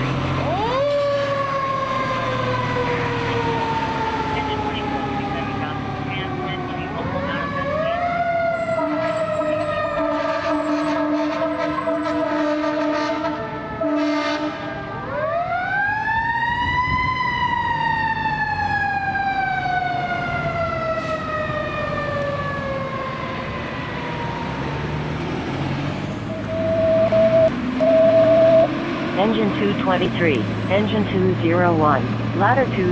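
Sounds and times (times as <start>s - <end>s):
fire truck air horn blasts: 8.6s - 14.9s, 26.3s - 29.3s.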